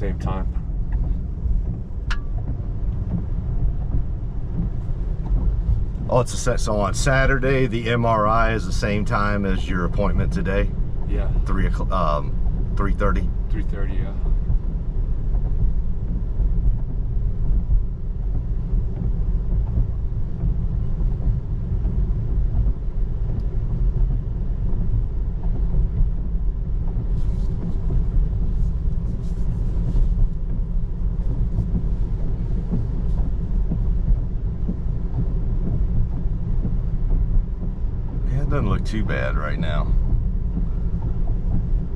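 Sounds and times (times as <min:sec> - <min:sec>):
road and tyre rumble in car: 0:00.0 - 0:41.9.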